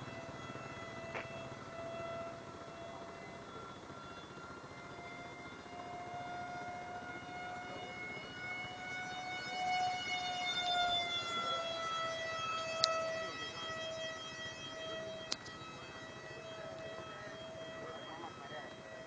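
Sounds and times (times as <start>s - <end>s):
model jet fan motor whining: 0.0s - 19.0s
sharp clicks: 15.2s - 15.6s.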